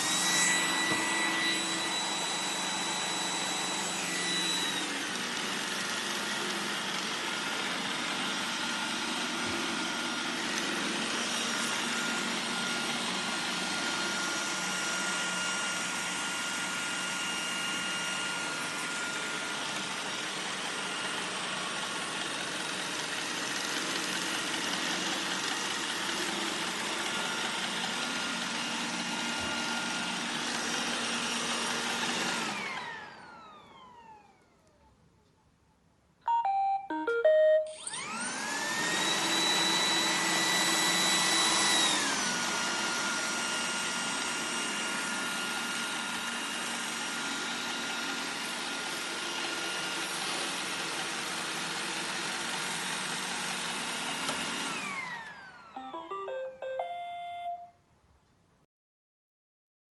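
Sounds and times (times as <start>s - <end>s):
robot vacuum whirring: 0.0s - 34.8s, 37.7s - 57.2s
motor spinning down: 37.8s - 44.6s.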